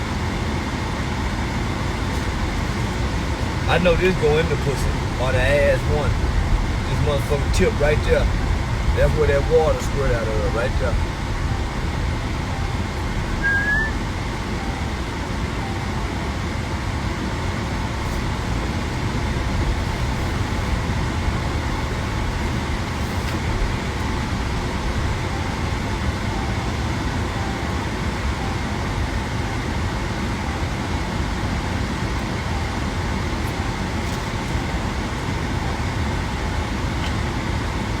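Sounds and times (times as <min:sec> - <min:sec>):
vehicle road rumble: 0:00.0 - 0:38.0
short rising squeak: 0:13.2 - 0:14.0.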